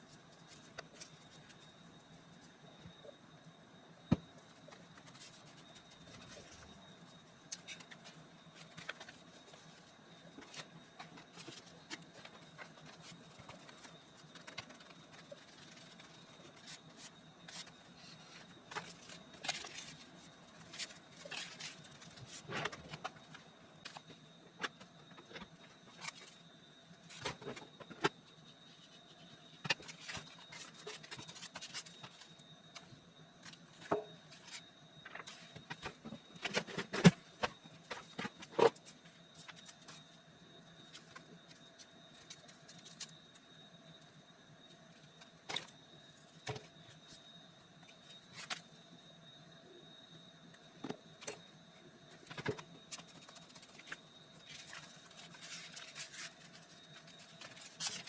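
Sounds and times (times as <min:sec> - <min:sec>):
hands working with paper: 0:07.5 - 0:23.2, 0:29.6 - 0:40.0, 0:52.2 - 0:58.0.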